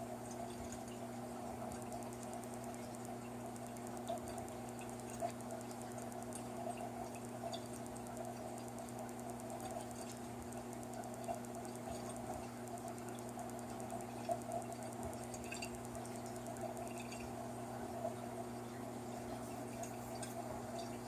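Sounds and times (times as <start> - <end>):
washing machine humming: 0.0 - 21.0
light clicks and ticks: 0.2 - 17.4.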